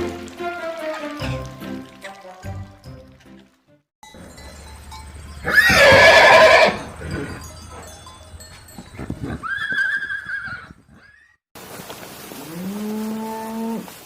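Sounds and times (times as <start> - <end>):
horse whinnying: 5.5 - 7.2, 9.2 - 11.4.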